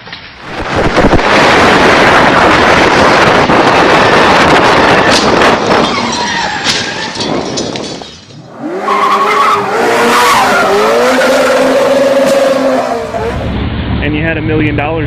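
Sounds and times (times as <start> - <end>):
tyres skidding: 0.0 - 13.8
loud rushing noise: 0.4 - 7.4, 9.6 - 15.0
sports car engine wavering: 8.5 - 14.1.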